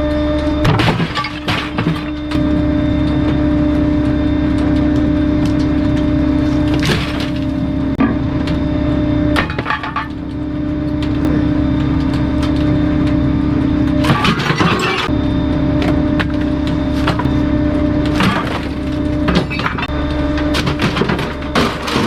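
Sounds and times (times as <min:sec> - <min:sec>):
wood cracking and splintering: 0:00.6 - 0:08.5, 0:15.8 - 0:22.0
truck hum: 0:10.0 - 0:22.0.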